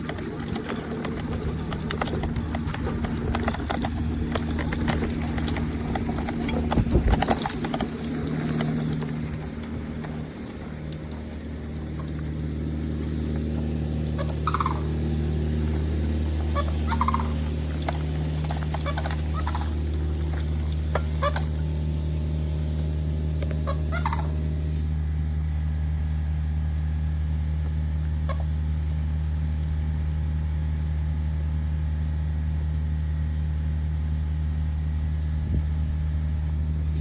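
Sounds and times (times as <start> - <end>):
steady low hum: 0.0 - 37.0
turkey gobbling: 14.0 - 15.5, 16.3 - 21.8, 23.6 - 24.5, 28.3 - 28.5.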